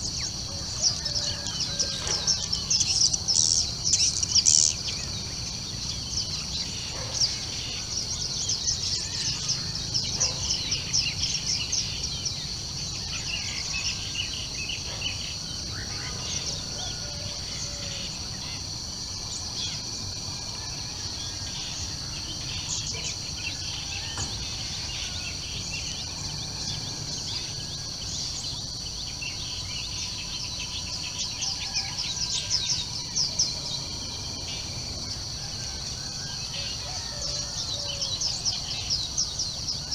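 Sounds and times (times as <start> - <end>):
small birds chirping: 0.0 - 19.8
insect drone: 0.0 - 39.9.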